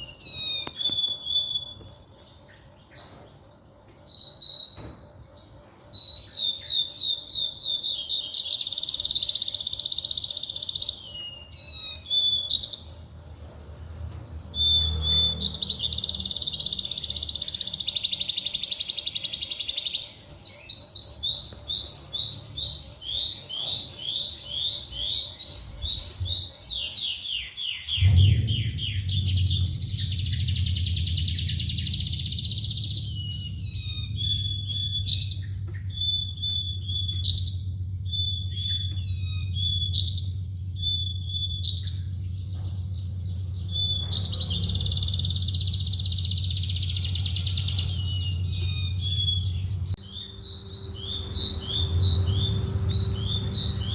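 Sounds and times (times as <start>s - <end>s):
lark singing: 0.0s - 53.9s
steady low hum: 28.0s - 53.9s.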